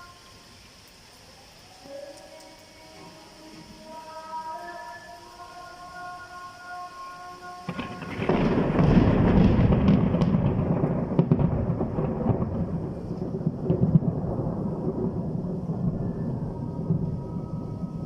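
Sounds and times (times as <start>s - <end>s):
rain: 0.0s - 18.0s
thunder rumbling: 7.6s - 18.0s.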